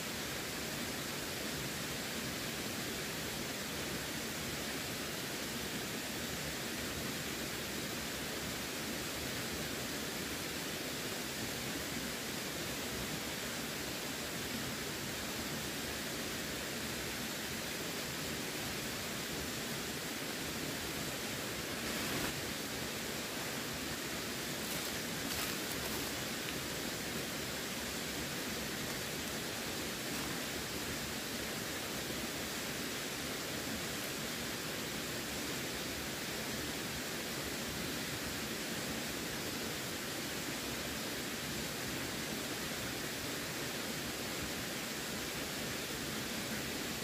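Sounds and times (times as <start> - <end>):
running water rushing: 0.1 - 47.0
water rushing: 12.9 - 36.1.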